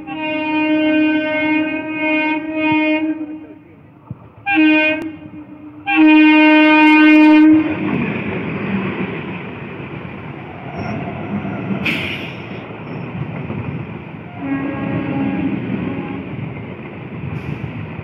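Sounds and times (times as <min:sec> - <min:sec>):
train horn blast: 0:00.0 - 0:03.7, 0:04.4 - 0:07.8, 0:14.3 - 0:16.4
train coaches rumbling and clattering: 0:00.0 - 0:18.0.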